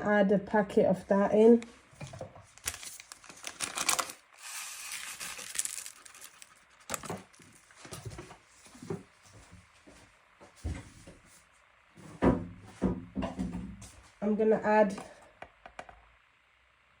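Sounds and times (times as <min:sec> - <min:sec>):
spice packet crinkling: 0:02.5 - 0:07.6.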